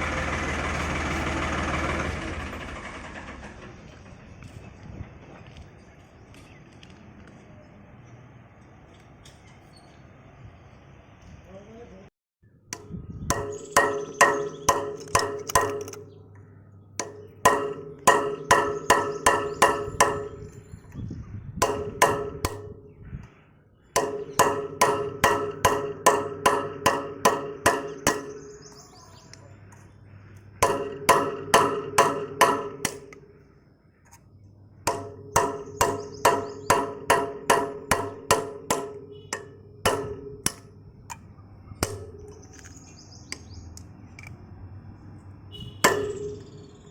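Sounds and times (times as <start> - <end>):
hammer striking metal: 12.7 - 16.2, 17.0 - 20.6, 21.6 - 23.0, 24.0 - 28.8, 30.6 - 33.4, 34.8 - 41.2, 41.8 - 42.7, 45.6 - 46.9.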